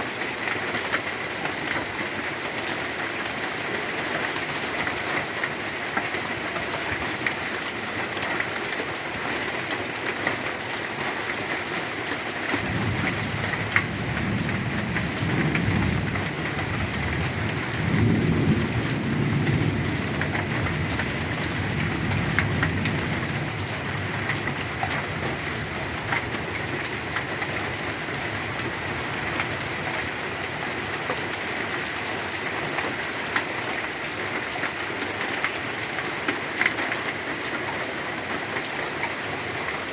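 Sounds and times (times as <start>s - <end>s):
heavy rain falling: 0.0s - 39.9s
thunder rumbling: 12.6s - 30.2s.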